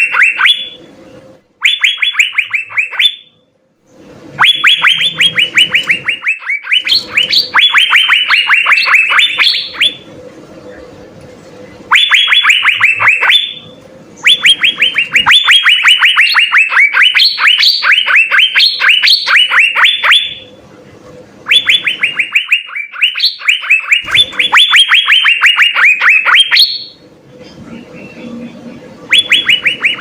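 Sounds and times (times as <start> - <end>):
birds singing descending whistles: 1.6 - 3.3, 4.4 - 10.0, 14.2 - 20.5, 21.5 - 27.0, 29.1 - 30.0.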